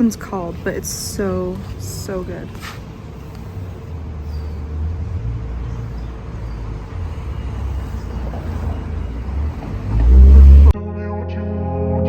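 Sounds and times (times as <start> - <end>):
road traffic rumble: 0.0 - 10.8.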